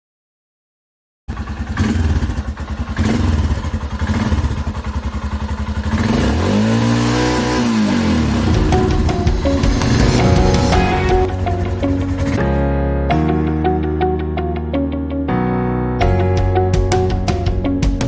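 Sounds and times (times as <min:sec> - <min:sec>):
motorcycle engine idling and revving: 0:01.3 - 0:12.6.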